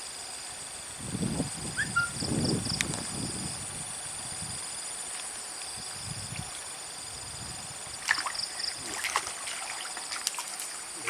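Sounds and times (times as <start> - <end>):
water sloshing and trickling: 5.1 - 11.0
sharp water splashes: 8.0 - 11.0.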